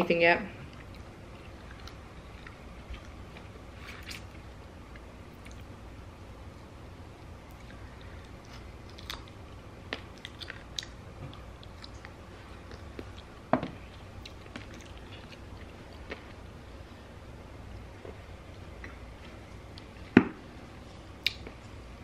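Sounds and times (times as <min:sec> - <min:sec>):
chewing and crunching: 0:00.6 - 0:05.7, 0:07.5 - 0:16.4.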